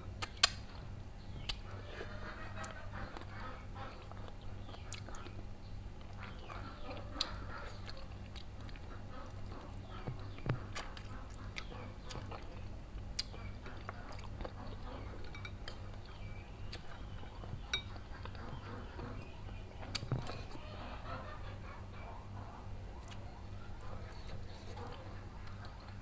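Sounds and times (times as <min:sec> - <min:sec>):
steady low hum: 0:00.0 - 0:26.0
person chewing and sucking: 0:07.2 - 0:14.6, 0:19.8 - 0:20.6.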